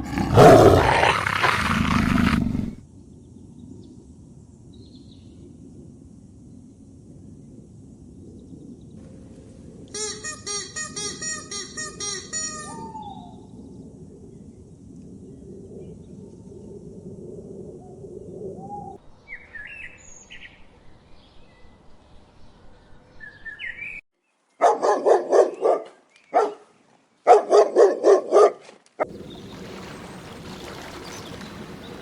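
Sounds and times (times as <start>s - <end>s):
bird rapidly repeated calls: 10.0s - 13.0s
bird chirps: 19.3s - 24.0s.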